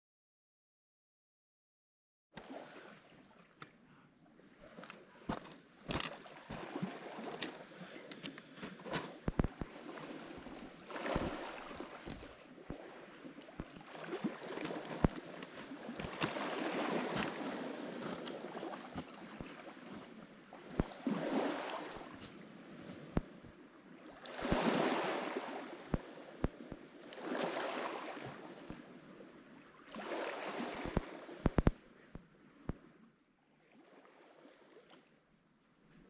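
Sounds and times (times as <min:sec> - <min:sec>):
waves washing onto rocky shore: 0:05.5 - 0:22.9, 0:24.1 - 0:26.4, 0:27.0 - 0:28.8, 0:29.9 - 0:31.8.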